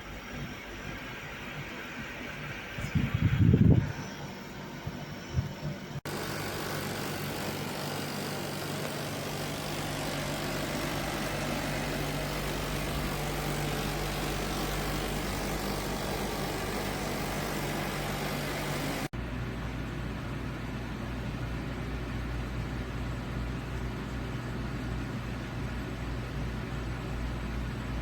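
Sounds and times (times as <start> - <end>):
air conditioner fan rush: 0.0 - 28.0
compressor hum: 0.0 - 28.0.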